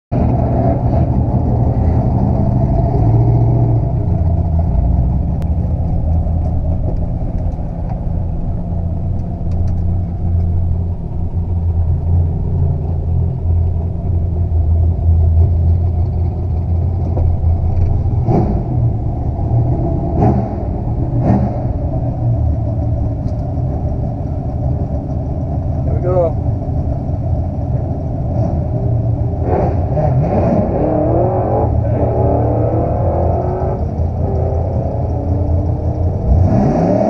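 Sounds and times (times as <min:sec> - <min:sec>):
car engine low rumble: 0:00.1 - 0:37.0.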